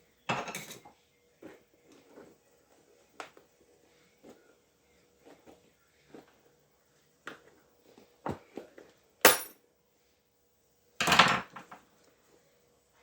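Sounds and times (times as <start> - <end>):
metallic clink: 9.3 - 9.6.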